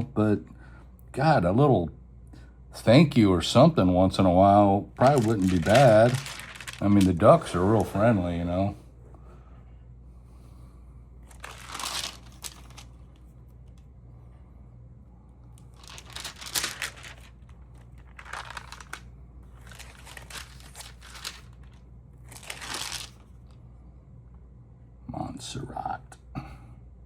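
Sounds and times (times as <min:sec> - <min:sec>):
low steady hum: 0:00.0 - 0:27.0
album pages crinkling and rustling: 0:05.0 - 0:08.5, 0:11.3 - 0:13.2, 0:15.6 - 0:23.4.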